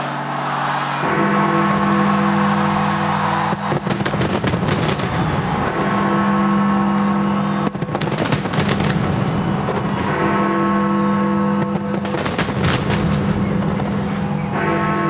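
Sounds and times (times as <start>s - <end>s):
fireworks bangs and crackles: 3.3s - 10.5s, 11.4s - 14.7s.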